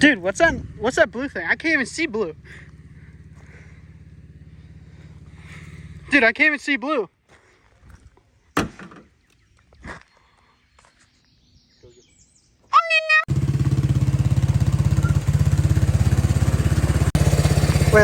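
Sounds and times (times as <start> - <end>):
small engine running: 0.3 - 6.2, 13.3 - 18.0.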